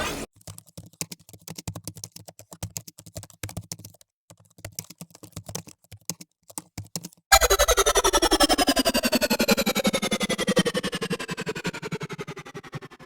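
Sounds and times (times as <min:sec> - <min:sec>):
typing on computer keyboard: 0:00.3 - 0:07.3.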